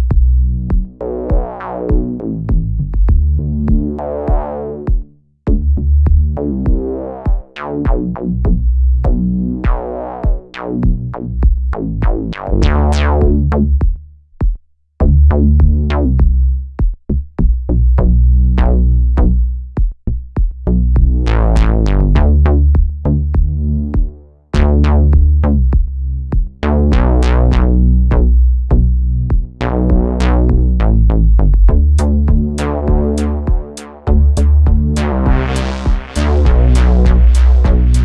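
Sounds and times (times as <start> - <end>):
gritty synthesizer sequence: 0.2 - 13.8, 20.8 - 25.7, 26.6 - 38.0
electronic drum hits: 0.8 - 5.1, 31.7 - 38.0.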